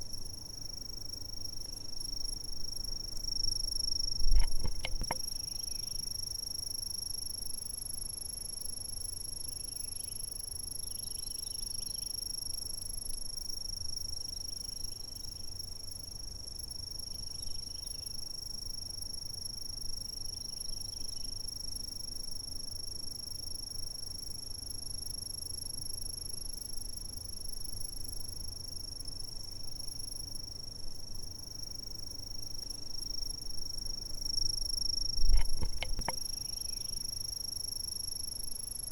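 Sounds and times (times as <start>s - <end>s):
insects trilling: 0.0s - 22.4s, 23.2s - 38.9s
soft low chirps: 35.2s - 36.4s.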